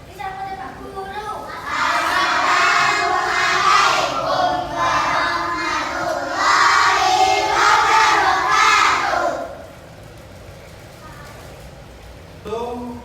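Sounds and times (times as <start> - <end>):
children chanting in unison: 1.4 - 9.7.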